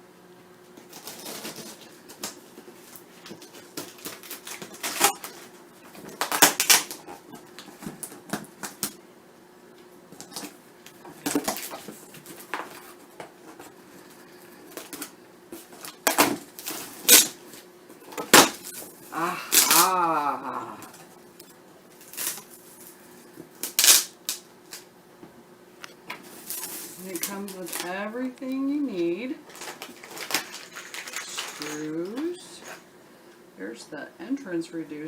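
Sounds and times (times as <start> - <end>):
cardboard and packaging rustling: 0.7 - 9.0, 10.1 - 20.1, 26.1 - 32.9.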